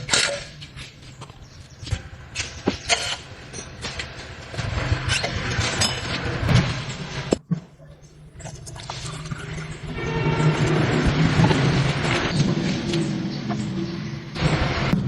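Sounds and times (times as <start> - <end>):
metallic clanks and rattles: 0.0 - 7.6
heavy machine engine humming: 9.0 - 15.0.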